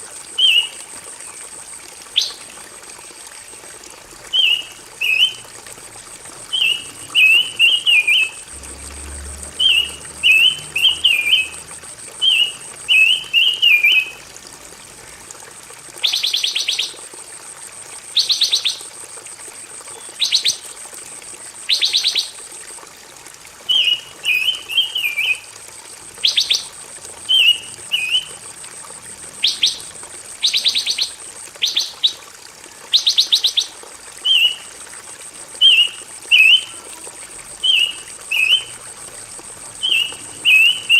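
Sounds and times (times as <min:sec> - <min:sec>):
songbird warbling: 0:09.6 - 0:14.2, 0:29.4 - 0:32.2, 0:37.6 - 0:38.7, 0:39.8 - 0:40.9.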